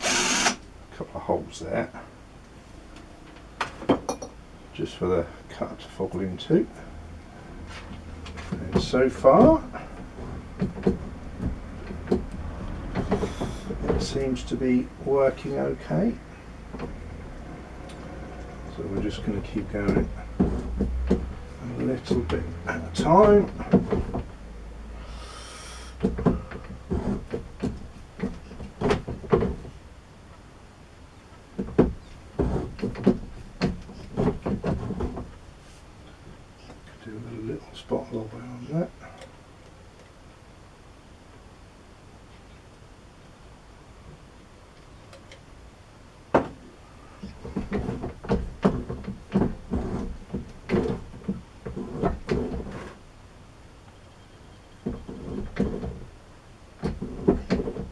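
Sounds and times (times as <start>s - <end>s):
broaching cutter knocks and scrapes: 7.6s - 14.2s, 18.9s - 24.4s, 26.0s - 29.7s, 31.6s - 35.4s, 47.2s - 53.0s, 54.8s - 56.1s, 56.8s - 57.9s.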